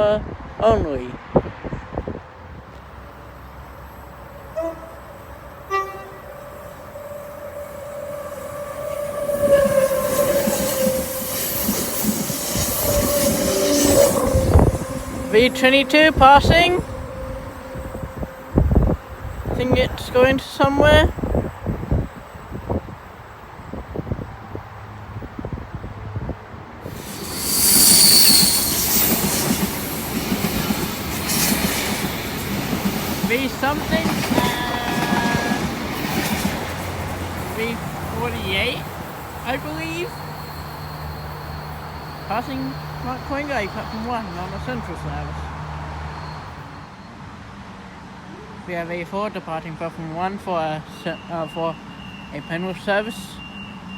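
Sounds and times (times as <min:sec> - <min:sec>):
electric train passing: 0:02.3 - 0:47.7
train wheels squealing: 0:03.2 - 0:23.0, 0:26.9 - 0:47.3, 0:51.0 - 0:53.9
high whine: 0:04.0 - 0:23.0.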